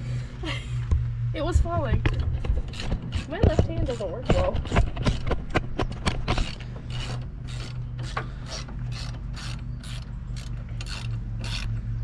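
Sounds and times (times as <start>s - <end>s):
low steady hum: 0.0s - 12.0s
hand ratchet clicking: 2.5s - 5.3s, 6.0s - 11.8s.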